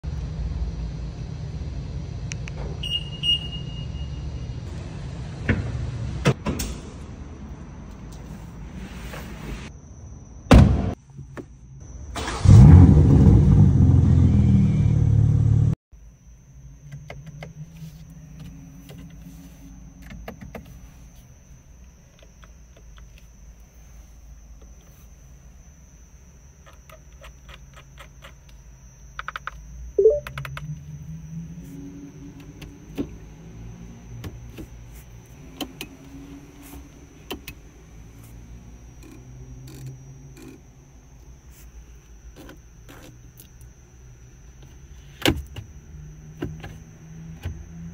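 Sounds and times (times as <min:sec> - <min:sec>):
console button clicks: 0:30.0 - 0:30.6.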